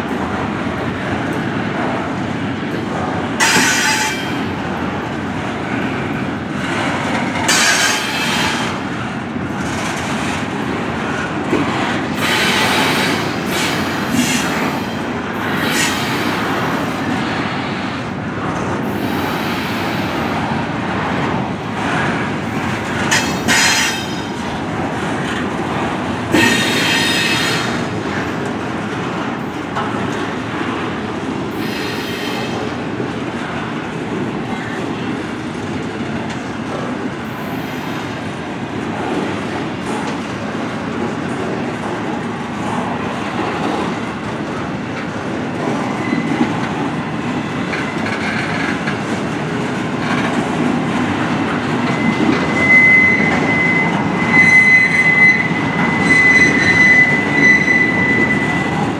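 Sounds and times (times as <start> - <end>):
steel wheels rumbling on rail: 0.0 - 58.9
high-pitched wheel squeals: 51.8 - 58.8.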